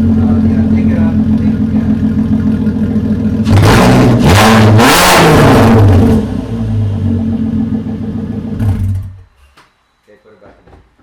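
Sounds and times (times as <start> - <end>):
car engine idling and revving: 0.0 - 9.3.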